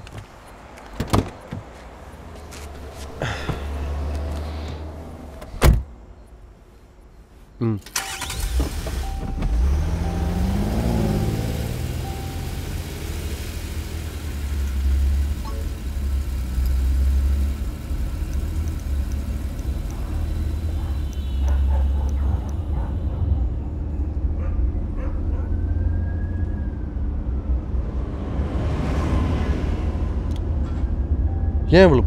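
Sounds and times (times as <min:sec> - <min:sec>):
car engine rumbling: 0:00.0 - 0:32.0.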